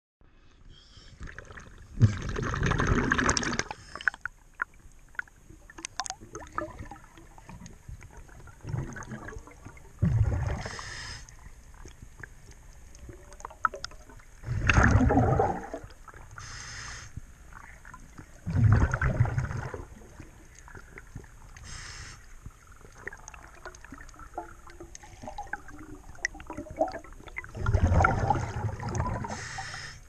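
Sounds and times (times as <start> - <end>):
regulator bubbles underwater: 1.2 - 16.6, 17.2 - 29.7
small clicks and crackles: 10.7 - 14.4.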